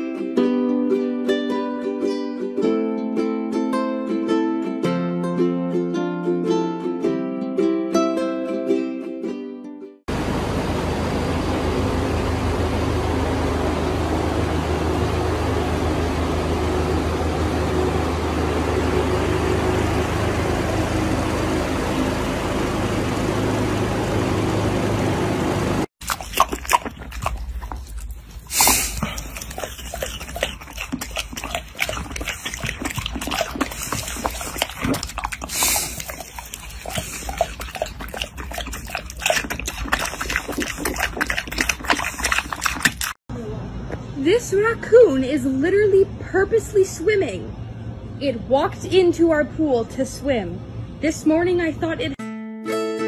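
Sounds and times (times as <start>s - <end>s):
piglet chewing and smacking: 26.0s - 43.3s.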